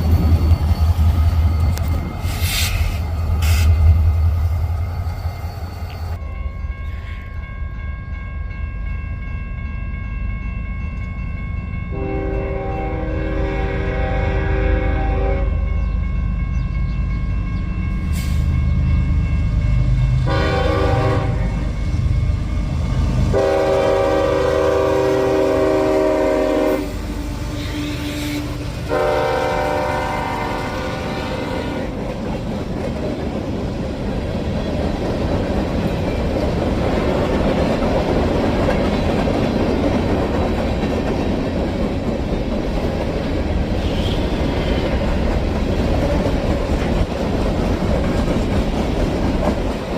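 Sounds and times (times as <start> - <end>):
locomotive horn blasts: 11.9 - 15.7, 20.2 - 21.7, 23.3 - 32.0, 43.8 - 44.8
train wheels clattering on rails: 15.8 - 49.9.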